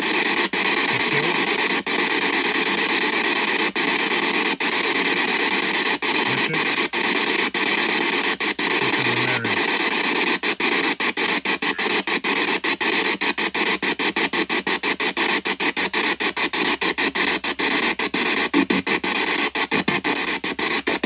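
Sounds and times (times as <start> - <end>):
snatches of broadcast sound: 0.0 - 1.8, 6.1 - 21.0
radio static sweeping: 0.8 - 1.6, 6.2 - 7.3, 8.5 - 10.2, 11.2 - 21.0.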